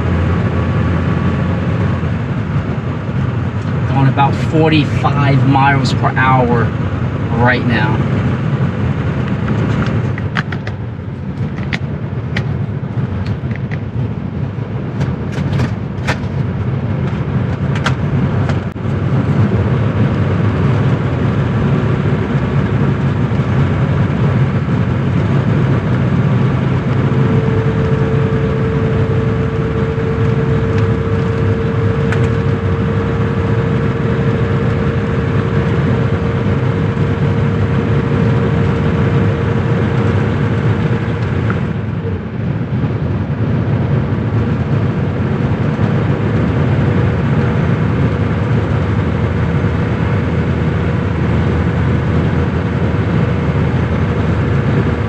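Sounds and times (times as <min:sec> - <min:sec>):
car engine drone: 0:00.0 - 0:55.0
road noise: 0:00.0 - 0:55.0
steady hum-like tone: 0:25.3 - 0:38.1.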